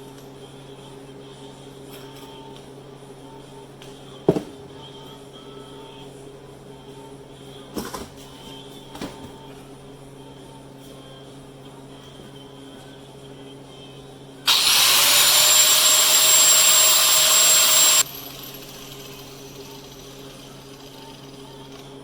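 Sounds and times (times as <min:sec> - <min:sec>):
power grinder running: 0:14.5 - 0:21.2.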